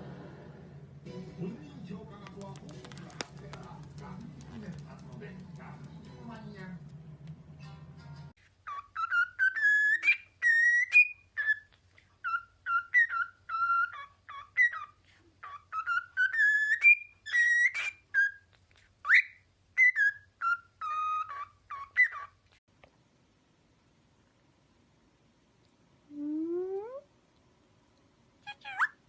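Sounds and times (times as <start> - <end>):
parrot whistling: 8.6 - 22.3.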